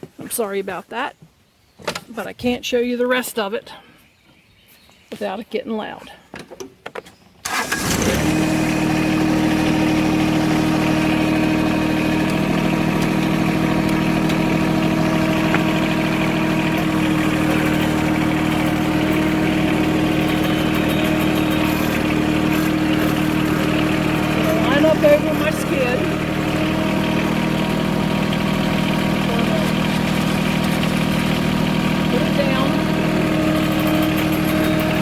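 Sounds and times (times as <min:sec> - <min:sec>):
tractor diesel engine running: 0:07.4 - 0:35.0.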